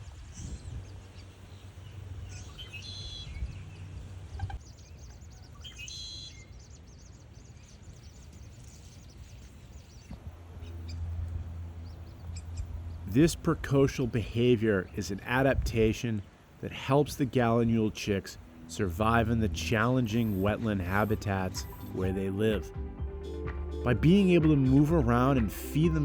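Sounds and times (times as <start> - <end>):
birds chirping: 0.0 - 26.0
low background rumble: 10.2 - 26.0.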